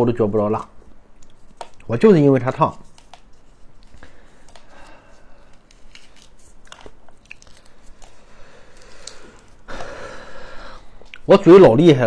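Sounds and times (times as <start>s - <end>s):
small crunches: 3.0s - 9.8s
chewing and biting: 5.6s - 8.2s.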